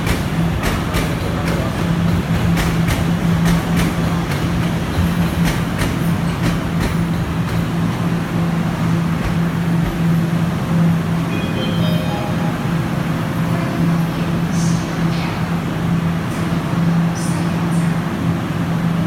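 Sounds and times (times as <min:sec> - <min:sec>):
sharp rail clicks: 0:00.0 - 0:07.8
metro train hum: 0:00.0 - 0:19.0.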